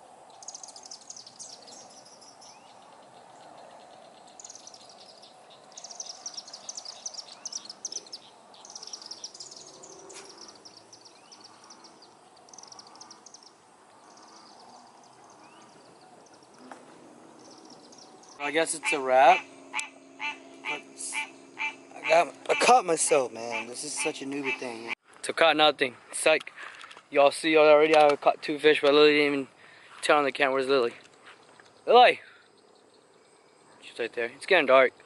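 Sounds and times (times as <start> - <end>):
steady low hum: 0.0 - 25.0
high-pitched chirps and trills: 17.3 - 24.9.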